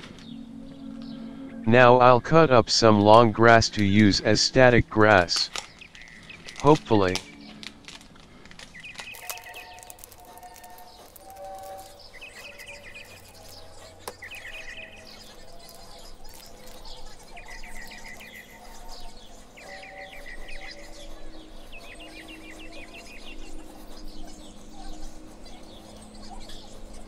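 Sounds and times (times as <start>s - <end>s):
soft background music: 0.0s - 27.0s
small bird chirping trills: 8.7s - 27.0s.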